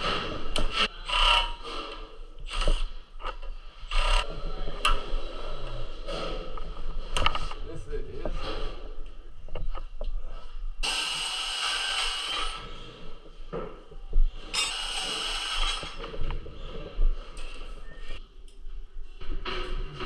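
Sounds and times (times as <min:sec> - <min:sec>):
power tool whine: 0:10.8 - 0:12.7, 0:14.5 - 0:16.0.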